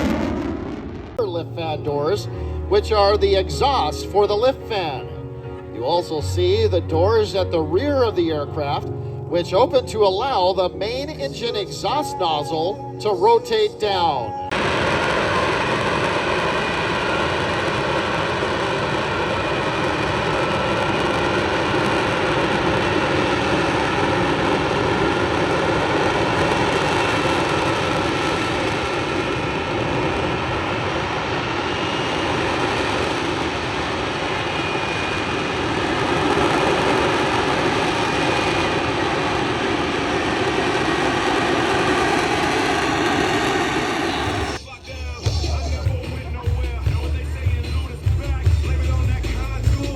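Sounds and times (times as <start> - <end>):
jet engine roaring: 0.0 - 7.6, 10.3 - 48.0
faint high whine: 11.3 - 44.8.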